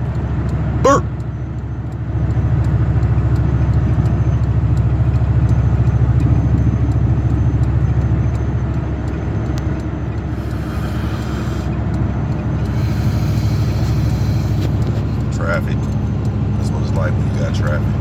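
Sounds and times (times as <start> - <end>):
road and wind noise: 0.0 - 18.0
hiss: 10.4 - 11.8, 12.7 - 14.6.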